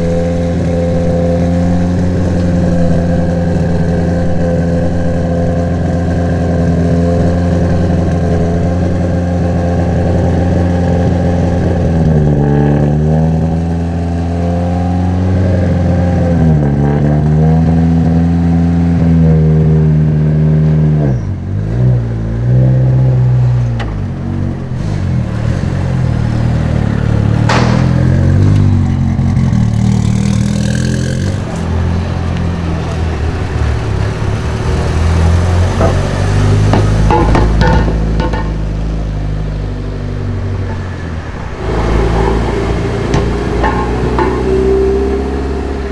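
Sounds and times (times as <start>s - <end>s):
car engine idling: 0.0s - 15.3s, 23.5s - 45.9s
sharp knock: 27.4s - 28.9s.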